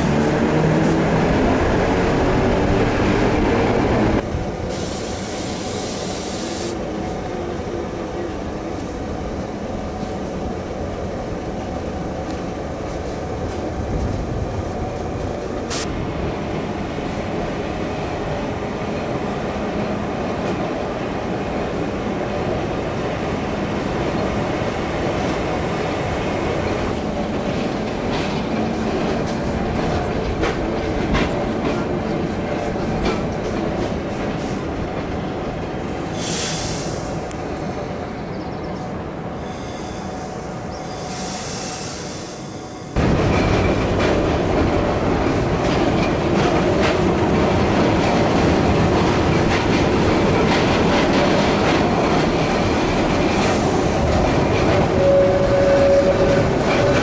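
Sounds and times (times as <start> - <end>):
train wheels and motors rumbling: 0.0 - 57.0.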